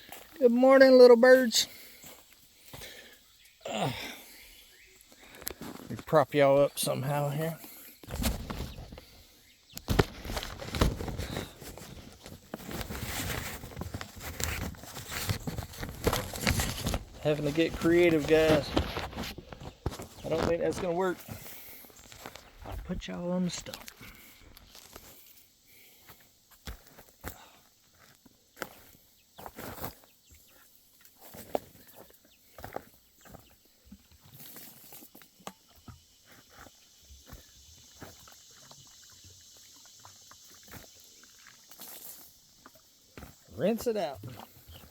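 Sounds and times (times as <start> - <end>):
rustling and scraping: 5.0 - 6.9, 7.6 - 25.4
footsteps: 7.5 - 9.2, 9.8 - 30.0.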